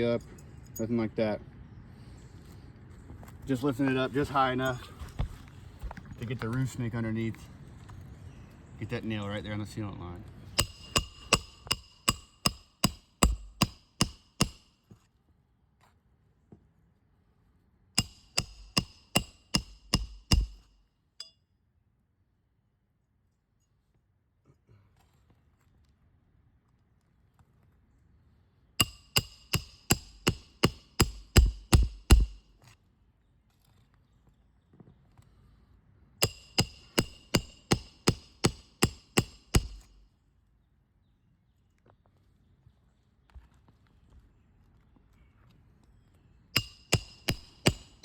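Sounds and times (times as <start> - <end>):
hammer striking metal: 10.6 - 14.7, 18.0 - 21.3, 28.8 - 32.4, 36.2 - 40.0, 46.6 - 48.0.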